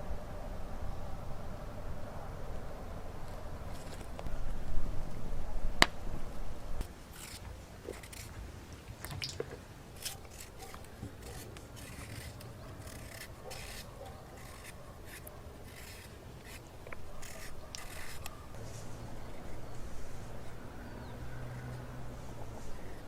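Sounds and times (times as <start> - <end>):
scraping strokes: 6.8 - 8.5, 10.0 - 19.1.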